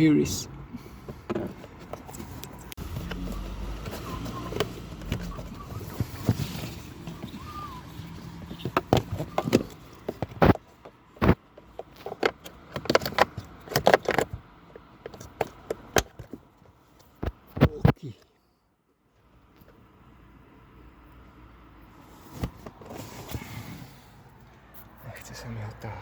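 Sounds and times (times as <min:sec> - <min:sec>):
plastic parts clicking and knocking: 0:08.4 - 0:18.0.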